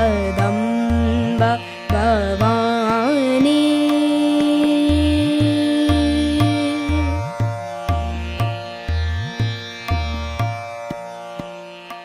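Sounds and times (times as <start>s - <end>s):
plucked strings: 0.0s - 12.0s
tabla beat: 0.0s - 12.0s.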